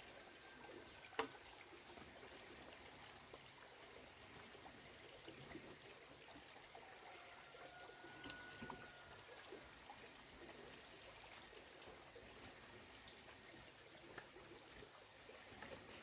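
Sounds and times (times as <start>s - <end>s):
faint steady hiss: 0.0s - 16.0s
faint ticks: 14.1s - 16.0s.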